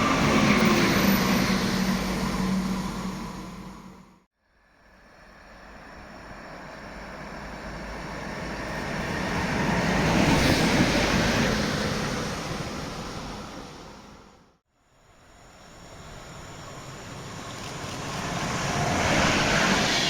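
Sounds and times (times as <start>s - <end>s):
train passing by: 0.0s - 4.3s, 5.0s - 14.6s, 15.2s - 20.0s.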